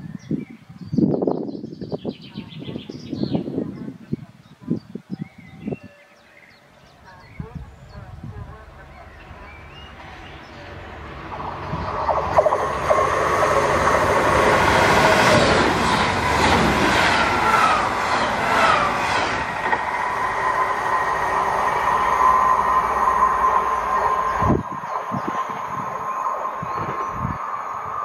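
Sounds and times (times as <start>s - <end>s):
passenger train rushing past: 7.0s - 28.0s
whining tones falling in pitch: 10.8s - 16.5s, 17.2s - 28.0s.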